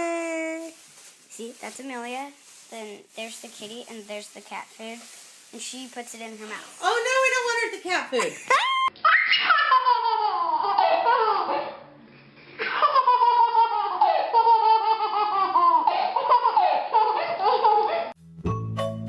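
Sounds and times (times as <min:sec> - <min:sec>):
baby laughing: 0:08.3 - 0:11.7, 0:12.6 - 0:18.1
music with plucked notes: 0:18.2 - 0:19.0.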